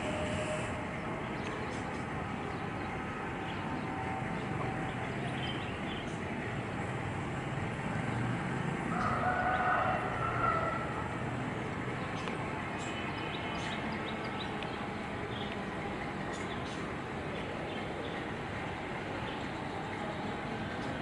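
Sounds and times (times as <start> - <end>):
drawn-out wavering tone: 0.0 - 1.2
steady city rumble: 0.0 - 21.0.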